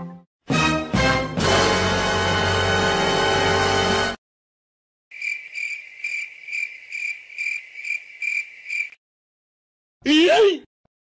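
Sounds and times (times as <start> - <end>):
cricket chirping: 5.1 - 9.0.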